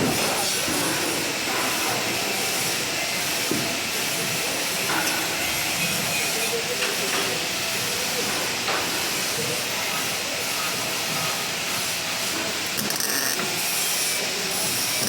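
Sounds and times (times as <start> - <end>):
welding arc hissing: 0.0 - 15.0.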